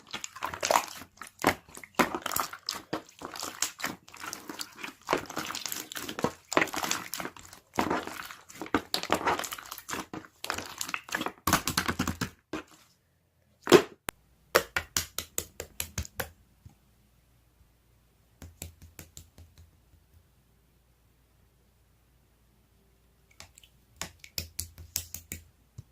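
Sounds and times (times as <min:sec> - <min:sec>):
crunching raw vegetables: 0:00.0 - 0:11.7.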